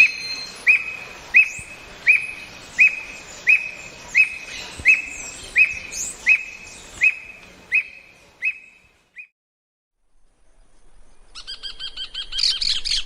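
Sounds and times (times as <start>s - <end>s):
bird whistling upslurred note: 0.0s - 9.3s
other birds calling faintly: 0.0s - 9.3s.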